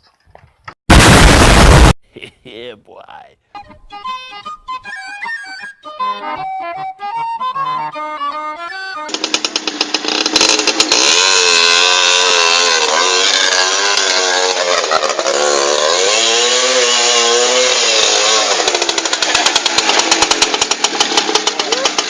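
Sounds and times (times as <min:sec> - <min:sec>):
small motorcycle engine revving: 0:09.1 - 0:22.0.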